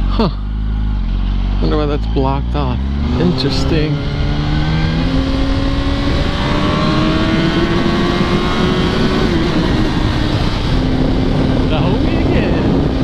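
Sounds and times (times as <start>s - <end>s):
motorcycle engine under throttle: 0.0s - 13.0s
wind rush: 2.8s - 13.0s.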